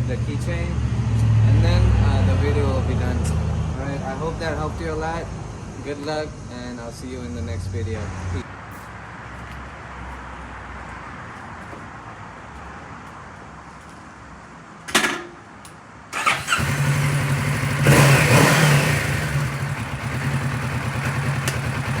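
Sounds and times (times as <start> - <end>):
motorcycle engine starting and idling: 16.1 - 22.0.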